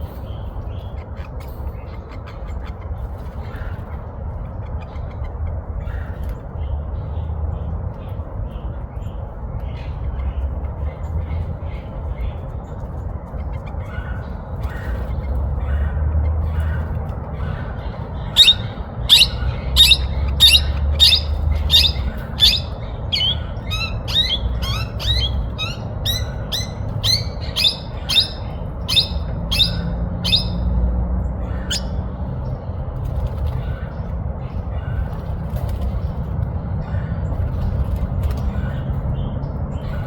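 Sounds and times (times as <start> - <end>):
low steady rumble: 1.4 - 40.0
parrots soft chatter: 13.4 - 30.7
parrots squawking chirps: 17.4 - 30.8, 31.4 - 32.0.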